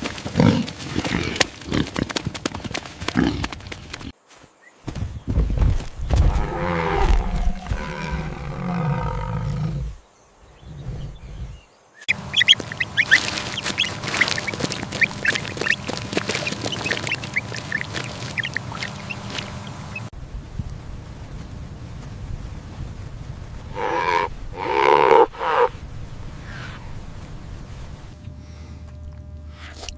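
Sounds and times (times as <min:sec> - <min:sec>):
drawn-out wavering animal call: 0:12.1 - 0:20.1, 0:23.7 - 0:25.8
ducks quacking: 0:12.1 - 0:20.1.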